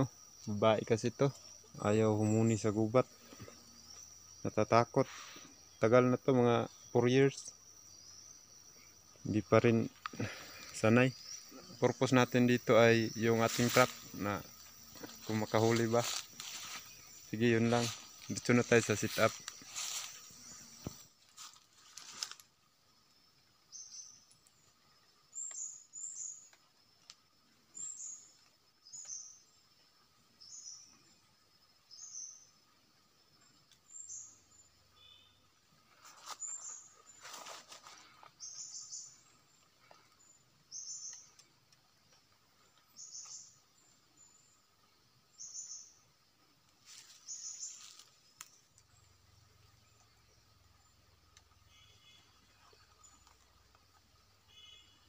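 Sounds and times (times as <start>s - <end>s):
bird chirping: 0.0s - 21.1s, 23.7s - 26.6s, 27.6s - 32.7s, 33.3s - 46.2s, 46.9s - 55.0s
sticks rustling and crackling: 13.4s - 17.0s, 17.6s - 22.5s, 36.0s - 38.4s, 46.8s - 48.6s.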